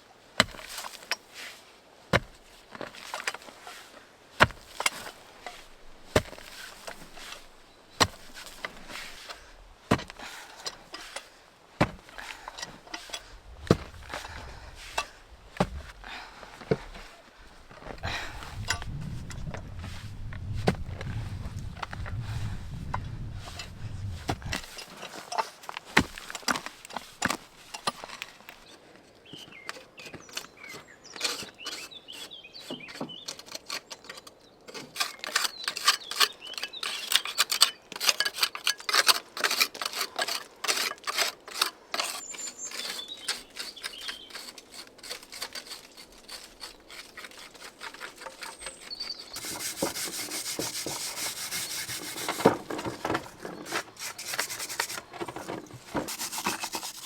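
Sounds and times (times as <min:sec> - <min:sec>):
hand tool scraping: 0:02.2 - 0:28.7, 0:29.4 - 0:57.0.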